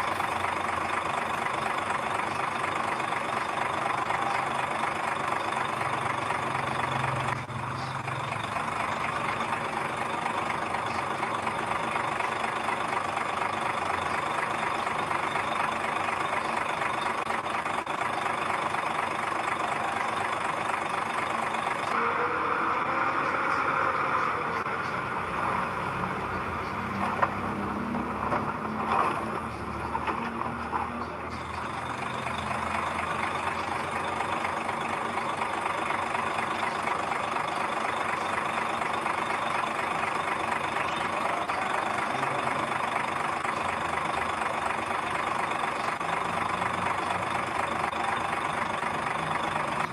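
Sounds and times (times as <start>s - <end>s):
heavy diesel engine running: 0.0s - 49.9s
rising and falling whine: 21.9s - 33.5s.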